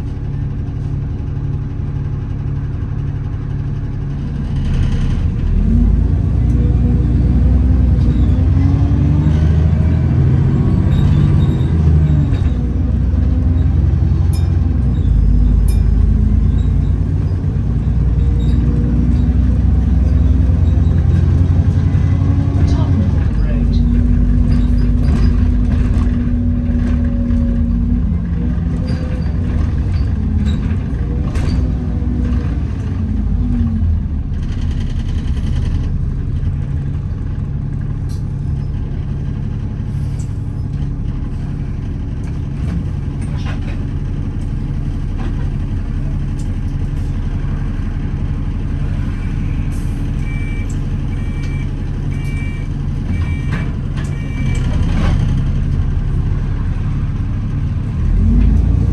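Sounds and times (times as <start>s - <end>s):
bus drivetrain whine: 0.0s - 58.9s
engine idling hum: 0.0s - 58.9s
beeping warning: 49.2s - 55.0s.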